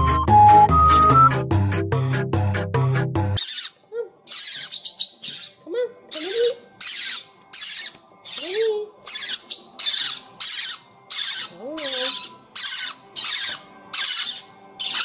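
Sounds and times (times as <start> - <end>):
bird screeching squawks: 3.4 - 15.0.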